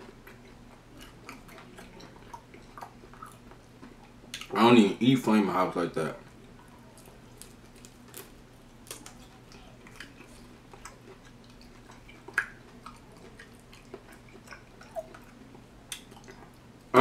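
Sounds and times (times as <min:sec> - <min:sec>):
person chewing chicken: 0:00.0 - 0:04.5, 0:06.3 - 0:16.8.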